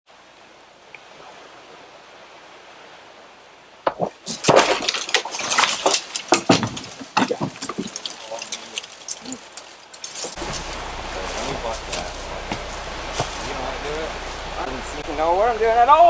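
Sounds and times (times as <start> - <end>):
faint steady hiss: 0.1 - 16.0
leaves rustling: 0.1 - 16.0
tree branches cracking and snapping: 4.0 - 14.5.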